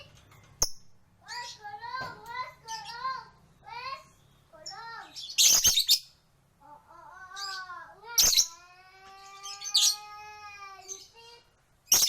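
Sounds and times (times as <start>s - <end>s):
lovebirds calling: 0.6s - 12.0s.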